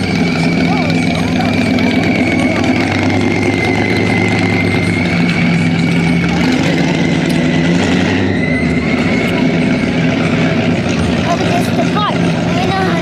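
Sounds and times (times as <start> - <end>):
car engines low hum: 0.0 - 13.0.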